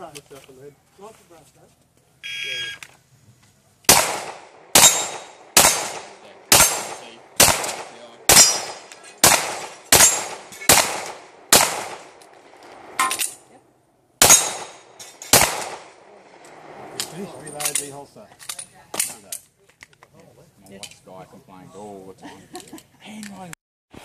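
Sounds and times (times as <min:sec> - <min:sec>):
pistol shots with echo: 0:03.9 - 0:12.2, 0:14.2 - 0:16.1.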